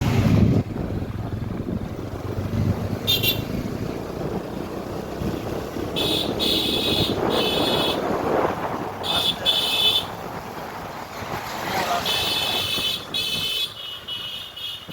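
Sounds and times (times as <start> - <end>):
wind buffeting microphone: 0.0 - 13.8
road noise: 0.0 - 14.9
horn honking: 3.0 - 3.6, 5.8 - 8.2, 9.0 - 10.2, 11.9 - 14.9.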